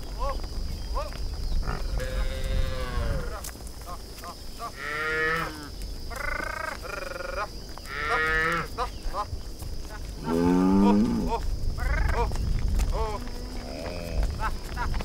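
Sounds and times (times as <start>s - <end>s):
cattle mooing: 10.2s - 11.3s.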